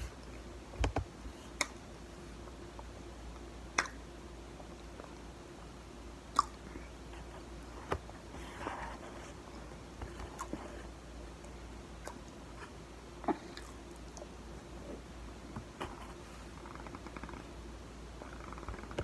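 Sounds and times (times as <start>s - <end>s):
sharp crunches of chewing: 6.3s - 6.9s.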